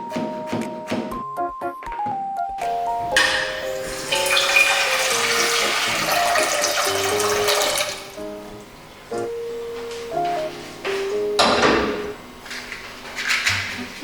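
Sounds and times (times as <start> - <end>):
soft background music: 0.0 - 12.4
water running from tap: 3.2 - 8.2.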